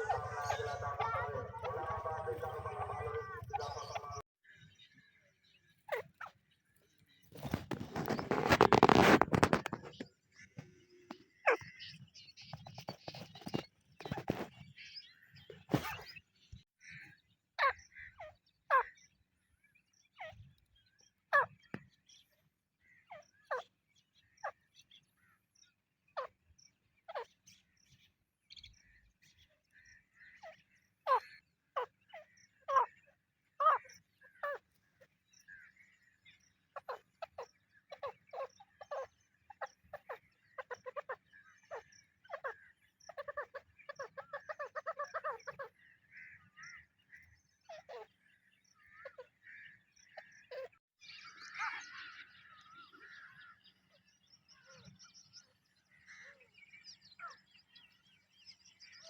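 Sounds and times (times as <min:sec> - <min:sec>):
partridges calling: 0:00.0 - 0:04.2, 0:07.0 - 0:19.2, 0:26.2 - 0:59.0.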